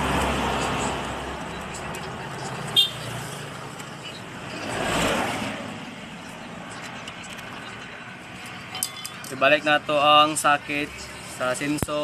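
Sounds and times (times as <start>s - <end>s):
vehicle passing: 0.0s - 8.7s
traffic hum: 0.0s - 12.0s.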